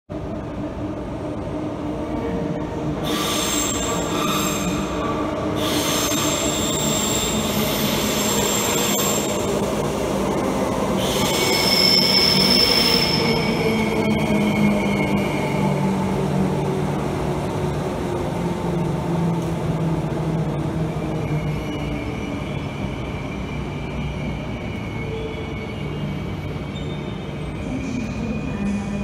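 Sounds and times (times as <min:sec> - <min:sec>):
electric train running noise: 0:03.0 - 0:22.7.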